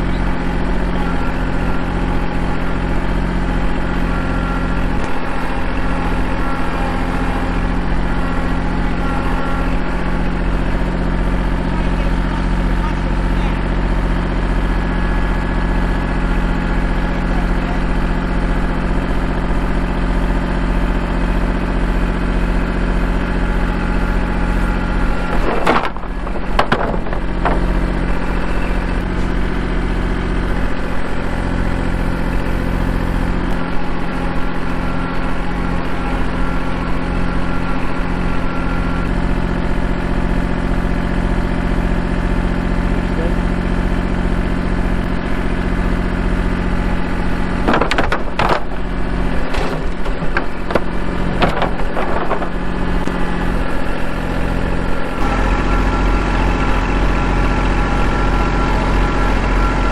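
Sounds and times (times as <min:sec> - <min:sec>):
tractor diesel engine running: 0:00.0 - 0:59.9
short knocks: 0:25.3 - 0:28.0.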